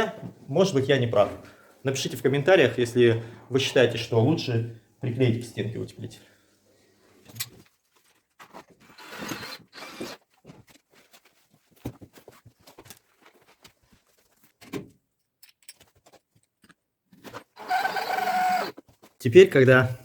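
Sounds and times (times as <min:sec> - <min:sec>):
rustling and scraping handling noise: 0:06.8 - 0:09.0, 0:10.2 - 0:17.6, 0:18.7 - 0:19.3.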